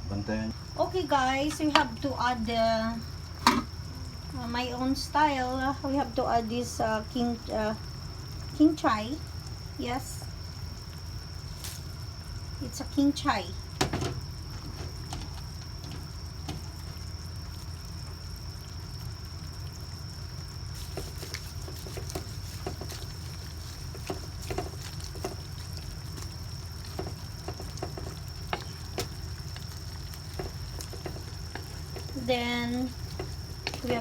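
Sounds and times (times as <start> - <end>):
utensils tapping a cooking pot: 20.9 - 25.5, 26.1 - 29.2, 30.2 - 34.0.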